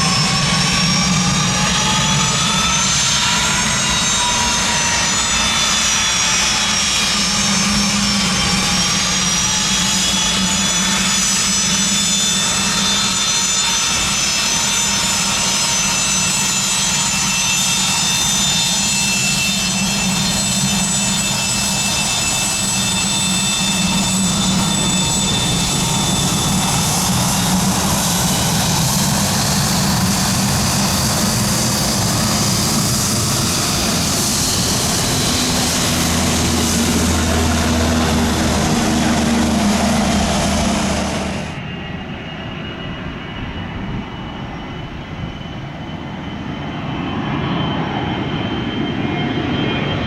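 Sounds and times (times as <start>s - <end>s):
jet engines whining: 0.0s - 50.0s.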